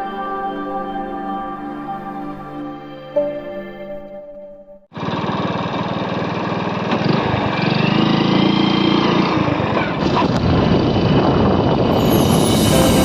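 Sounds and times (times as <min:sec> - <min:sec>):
motorcycle engine running: 0:04.9 - 0:11.8
road and wind noise: 0:05.0 - 0:13.0.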